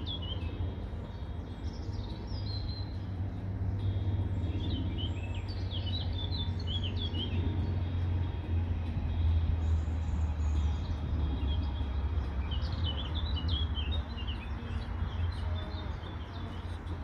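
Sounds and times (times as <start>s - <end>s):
low rumble: 0.0s - 17.0s
small birds chirping: 0.0s - 17.0s.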